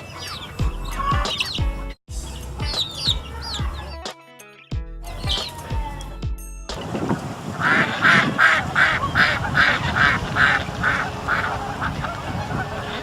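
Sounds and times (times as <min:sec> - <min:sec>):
duck quacking: 0:07.5 - 0:13.0.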